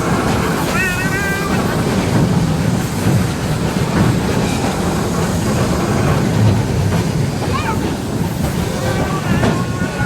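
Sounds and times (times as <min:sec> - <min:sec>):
train wheels rumbling: 0:00.0 - 0:10.0.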